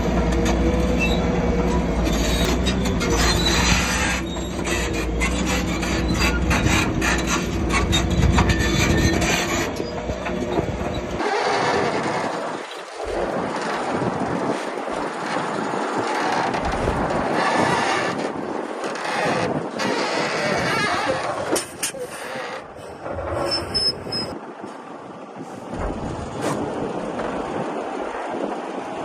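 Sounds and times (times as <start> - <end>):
diesel machinery engine running: 0.0 - 12.2
rough scraping rushing noise: 0.0 - 24.4.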